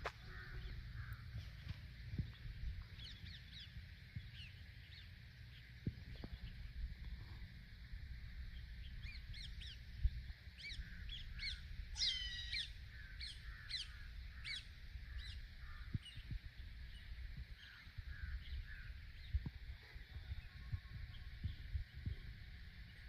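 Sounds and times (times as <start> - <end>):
birds short sharp calls: 10.6 - 16.2.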